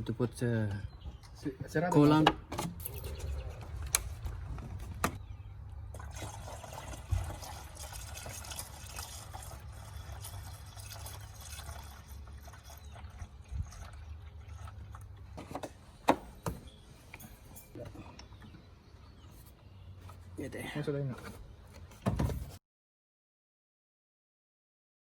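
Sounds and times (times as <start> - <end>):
liquid trickling and gurgling: 2.8 - 5.0, 5.8 - 15.4.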